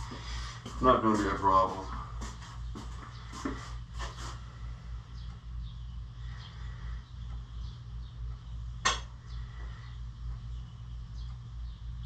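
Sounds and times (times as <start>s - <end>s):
steady low hum: 0.0s - 12.0s
faint bird chirps: 4.9s - 12.0s.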